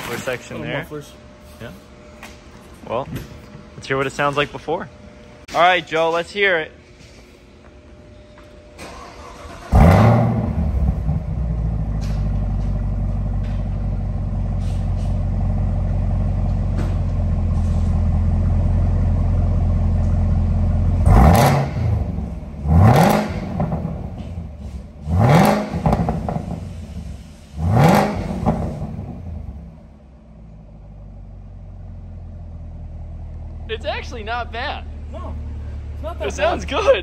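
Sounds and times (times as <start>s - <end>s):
car engine starting and idling: 8.8s - 37.0s
engine revving: 9.2s - 12.2s, 20.9s - 26.8s, 27.5s - 29.6s.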